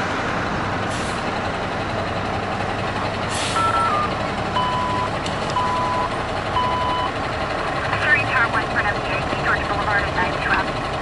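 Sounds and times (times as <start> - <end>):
diesel engine running: 0.0 - 11.0
truck backup alarm beeping: 3.4 - 7.2.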